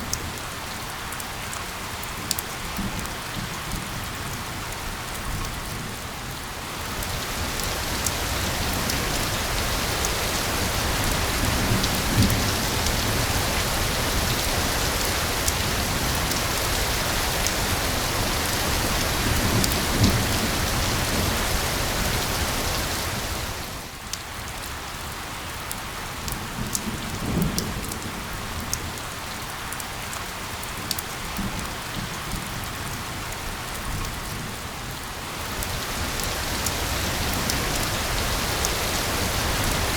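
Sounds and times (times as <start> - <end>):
heavy rain hiss: 5.8 - 24.1, 34.4 - 39.9.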